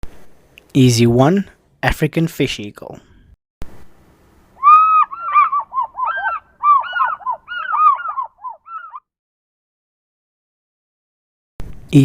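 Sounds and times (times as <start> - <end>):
fish eagle yelping calls: 4.6 - 9.1.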